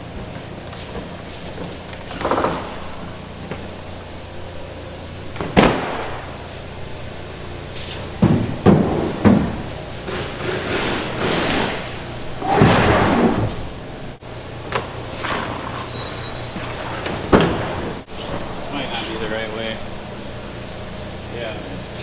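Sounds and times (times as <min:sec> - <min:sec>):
mat scraping and sliding: 0:11.3 - 0:13.7.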